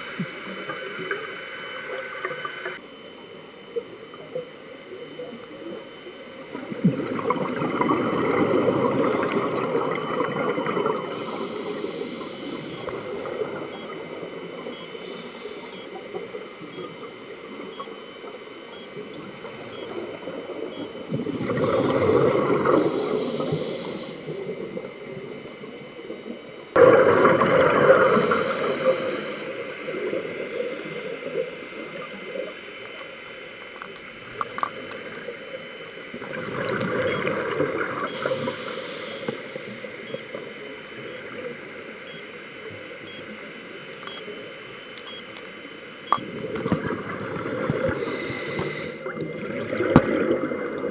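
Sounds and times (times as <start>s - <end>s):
regulator bubbles gurgling underwater: 0.0s - 50.9s
steady background hiss: 8.5s - 49.2s.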